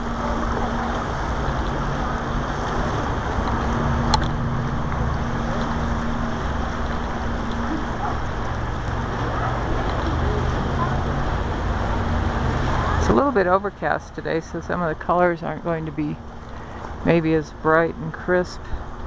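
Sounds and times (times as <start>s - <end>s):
low steady hum: 0.0s - 19.0s
river rushing: 0.0s - 19.0s.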